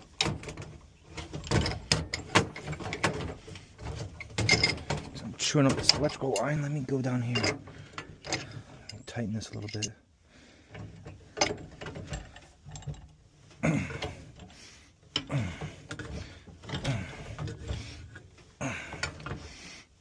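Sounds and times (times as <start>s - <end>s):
wrench creaking on metal pipe: 4.2s - 10.0s.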